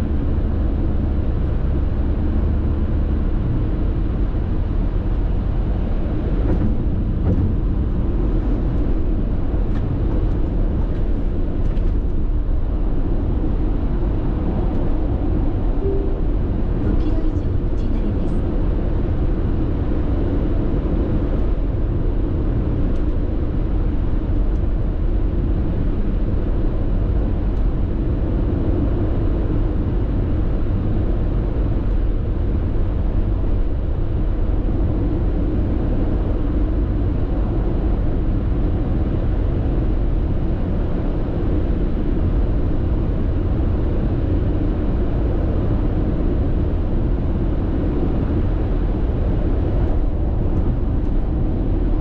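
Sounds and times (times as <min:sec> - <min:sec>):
car engine: 0:00.0 - 0:23.4
road and tyre noise: 0:00.0 - 0:52.0.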